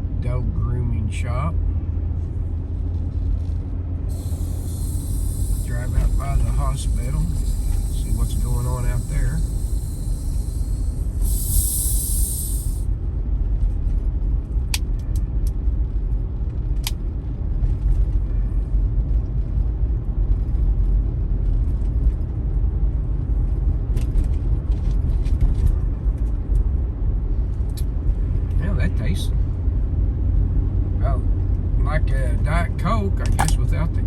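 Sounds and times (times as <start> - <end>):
vehicle engine and road noise: 0.0 - 34.0
brief hiss: 4.1 - 12.8.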